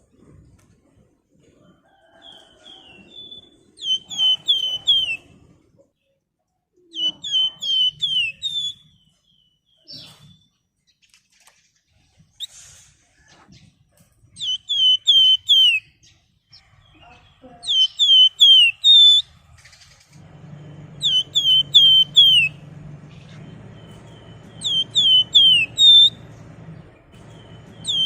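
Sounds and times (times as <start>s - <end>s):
songbird whistling: 2.3s - 5.3s, 6.9s - 10.5s, 14.4s - 16.0s, 17.6s - 19.3s, 20.3s - 26.5s, 27.1s - 28.0s.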